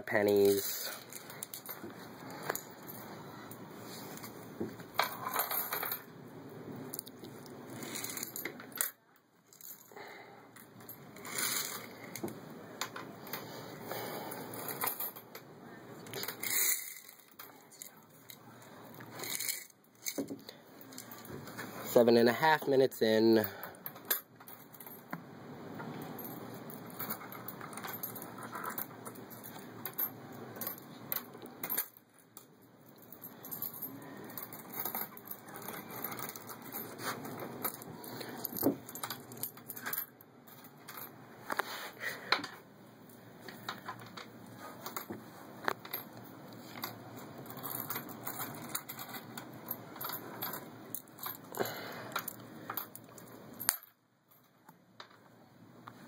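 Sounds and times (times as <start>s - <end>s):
background hiss: 0.0s - 53.9s
coins clinking into a boat: 5.0s - 6.1s, 16.2s - 18.0s, 19.2s - 20.2s, 46.7s - 54.5s.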